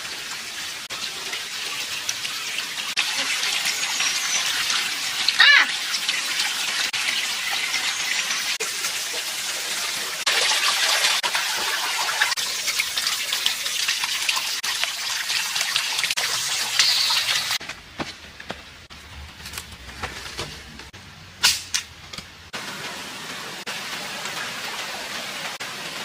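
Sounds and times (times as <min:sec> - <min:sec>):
water running: 0:00.0 - 0:17.7.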